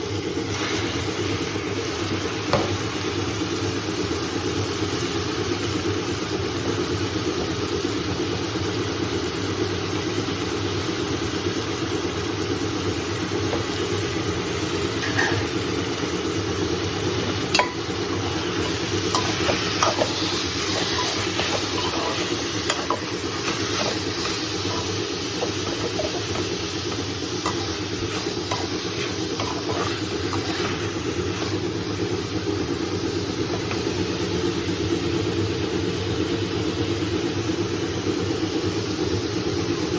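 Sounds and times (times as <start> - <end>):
food sizzling in a pan: 0.0 - 39.9
steady low hum: 13.0 - 35.4
spoon tapping against pan: 17.6 - 17.8.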